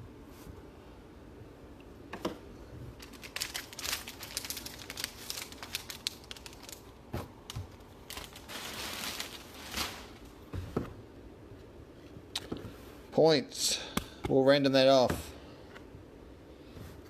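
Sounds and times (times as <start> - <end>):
wrappers crinkling and tearing: 3.0 - 10.3.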